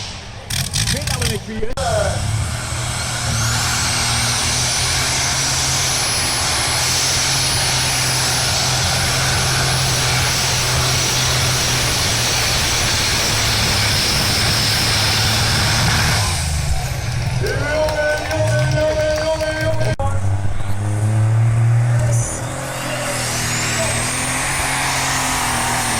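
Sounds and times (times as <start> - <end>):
tractor engine running flat out: 0.0 - 25.9
high-pitched whine: 20.2 - 25.9.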